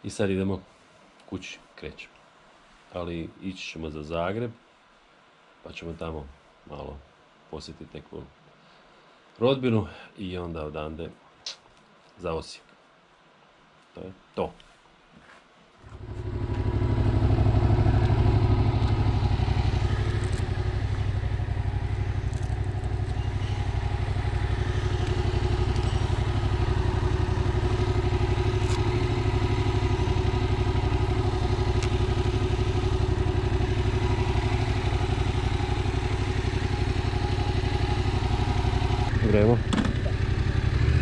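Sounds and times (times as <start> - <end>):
motorcycle engine running: 15.8 - 41.0.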